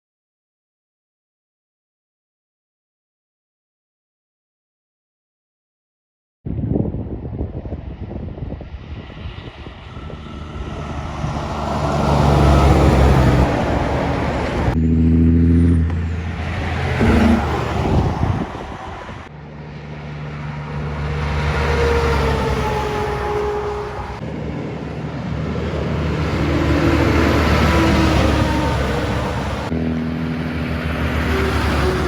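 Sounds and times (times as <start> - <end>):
trucks driving past: 8.7 - 32.0.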